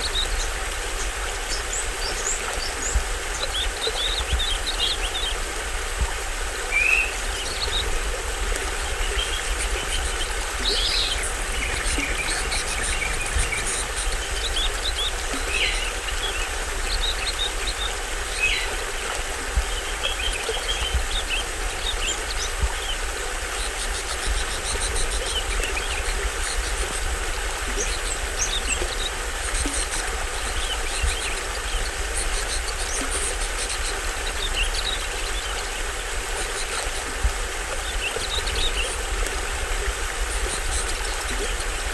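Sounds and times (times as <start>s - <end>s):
small waterfall splashing: 0.0s - 41.9s
birds chirping: 6.7s - 26.8s.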